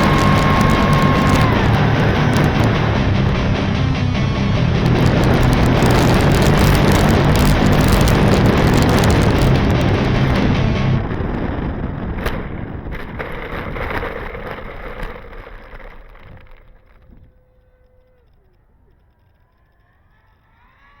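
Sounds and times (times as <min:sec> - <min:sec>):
wind rush: 0:00.0 - 0:14.8.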